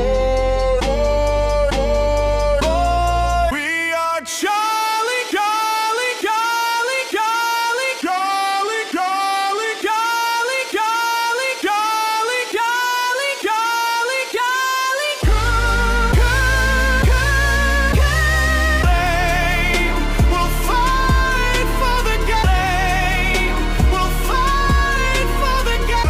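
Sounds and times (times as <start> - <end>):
bass-heavy band: 0.0 - 3.6, 15.2 - 26.0.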